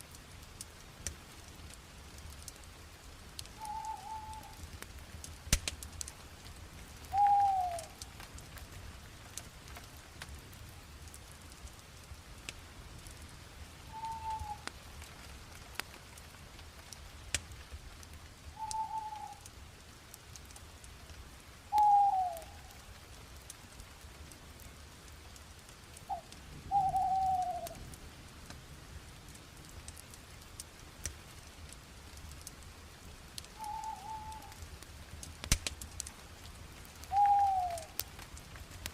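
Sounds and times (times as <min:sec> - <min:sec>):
fire crackling and popping: 0:00.0 - 0:38.9
bird calling single notes: 0:03.6 - 0:04.6, 0:07.1 - 0:07.9, 0:13.9 - 0:14.6, 0:18.6 - 0:19.4, 0:21.7 - 0:22.5, 0:26.1 - 0:27.8, 0:33.6 - 0:34.5, 0:37.1 - 0:38.0.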